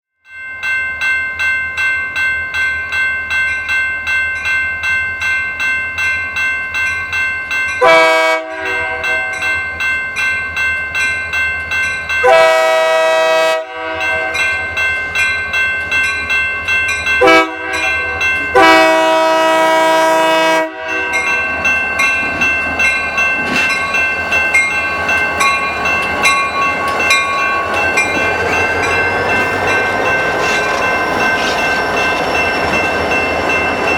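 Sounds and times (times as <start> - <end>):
bell ringing: 0.3 - 19.6, 20.6 - 33.9
train horn blasts: 7.8 - 9.5, 12.2 - 14.4, 17.2 - 21.2
train rumble passing: 13.7 - 33.9.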